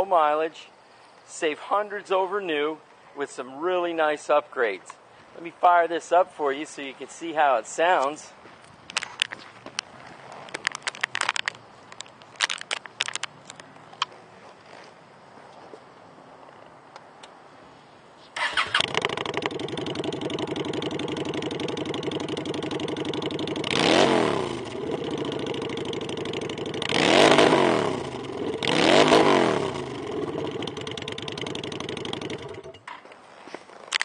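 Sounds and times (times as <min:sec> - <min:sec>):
motorcycle engine starting and idling: 0:18.3 - 0:33.1
motorcycle engine revving: 0:18.4 - 0:32.9.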